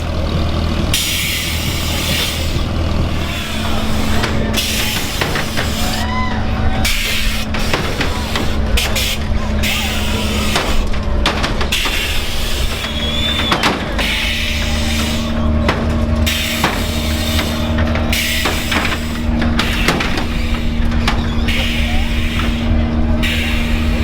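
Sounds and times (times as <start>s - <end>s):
vehicle noise: 0.0s - 24.0s
bursts of hissing: 1.0s - 24.0s
knocks: 3.8s - 5.9s, 10.4s - 21.7s.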